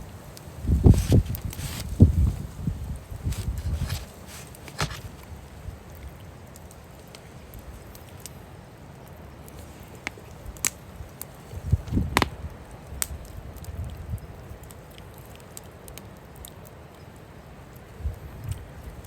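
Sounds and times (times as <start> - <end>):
wind rumbling on microphone: 0.0 - 6.1, 10.3 - 14.6, 17.9 - 19.0
wood fire crackling: 0.0 - 18.0.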